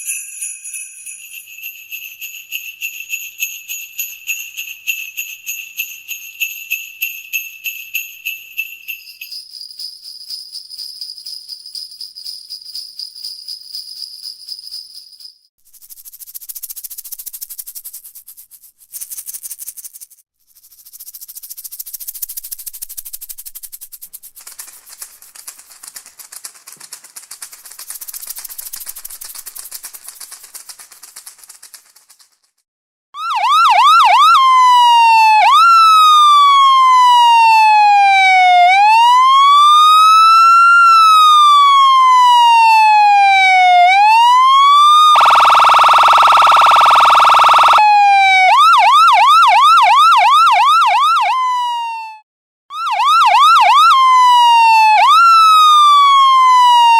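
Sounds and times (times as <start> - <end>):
hissy rattling shake: 15.8 - 32.6
electronic siren yelping and wailing: 33.2 - 56.9.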